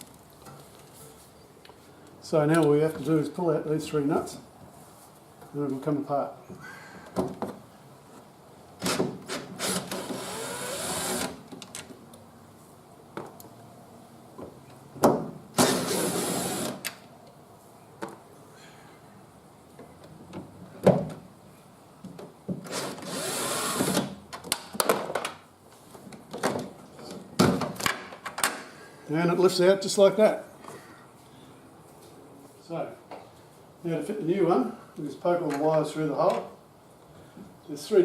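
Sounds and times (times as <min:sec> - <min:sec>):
power drill whirring: 0:08.8 - 0:11.4, 0:15.6 - 0:16.8, 0:22.7 - 0:24.0.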